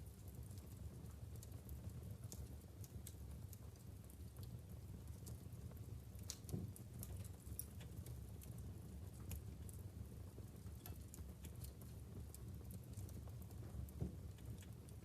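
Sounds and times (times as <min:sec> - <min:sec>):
low rumble of flames: 0:00.0 - 0:15.0
logs crackling and popping: 0:00.1 - 0:15.0.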